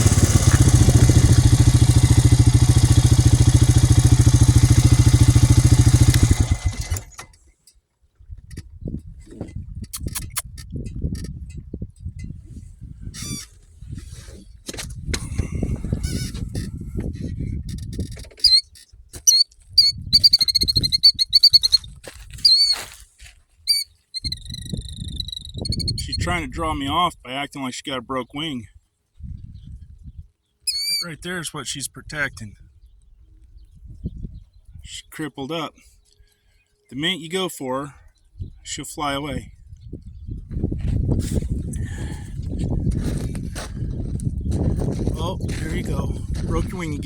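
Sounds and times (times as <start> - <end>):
engine idling and shutting off: 0.0 - 7.6
shrill bird alarm calls: 18.4 - 22.9, 23.7 - 26.1, 30.6 - 31.2
low rumbling noise: 41.0 - 47.0.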